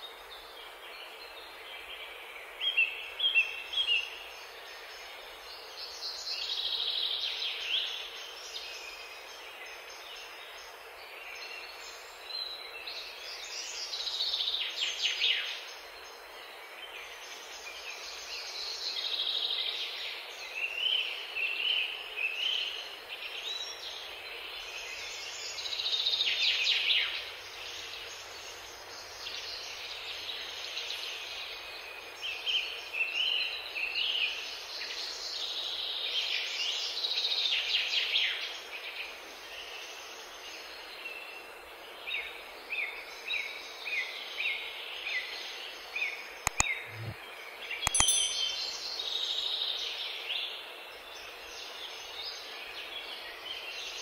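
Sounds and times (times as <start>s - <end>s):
songbirds chirping: 0.0s - 54.0s
steady background hiss: 0.0s - 54.0s.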